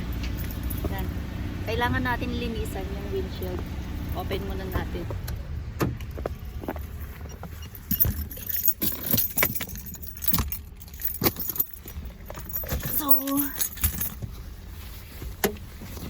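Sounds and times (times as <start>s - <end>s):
keys jangling: 0.0s - 1.0s, 7.6s - 14.3s.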